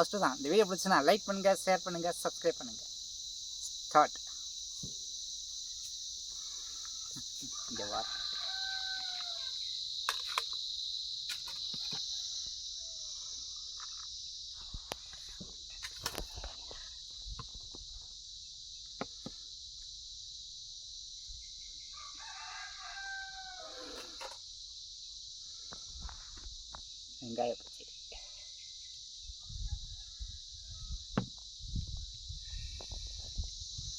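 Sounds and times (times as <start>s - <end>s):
crickets chirping: 0.0s - 33.9s
rooster crowing: 6.7s - 9.7s, 11.8s - 13.2s, 21.8s - 24.2s, 29.4s - 31.1s.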